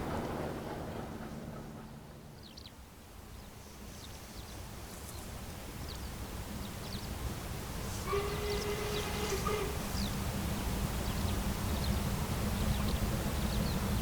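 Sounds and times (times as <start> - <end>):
low outdoor rumble: 0.0 - 3.0
passing train rumble: 0.0 - 14.0.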